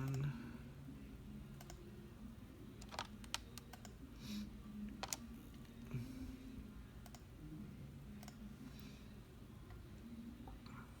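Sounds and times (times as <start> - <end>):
faint low hum: 0.0 - 11.0
computer mouse and keyboard clicks: 2.8 - 4.0, 5.0 - 5.2.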